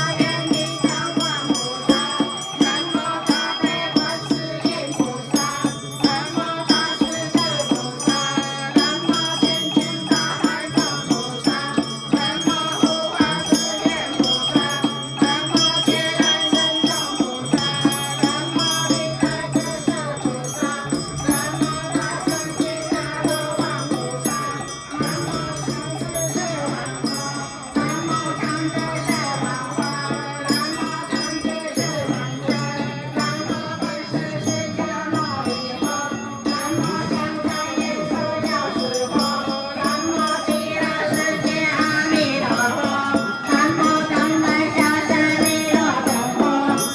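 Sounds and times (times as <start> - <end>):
bell-like ringing: 0.0 - 46.9
percussion beat: 0.0 - 46.9
voices chanting: 0.0 - 46.9.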